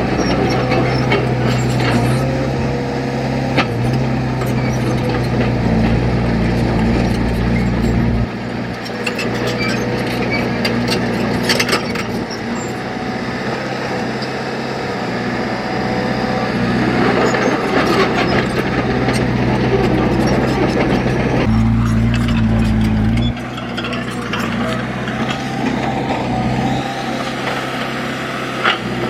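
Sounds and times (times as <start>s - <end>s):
heavy machinery running: 0.0s - 29.0s
clanks and knocks: 17.2s - 25.9s.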